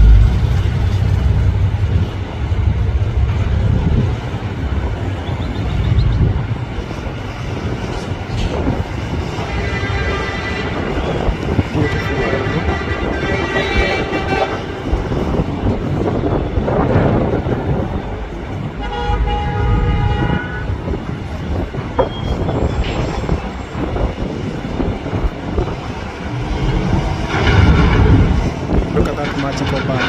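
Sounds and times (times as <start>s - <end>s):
jet engines rumbling: 0.0s - 30.0s
horn-like tones: 9.4s - 15.0s, 18.7s - 20.8s.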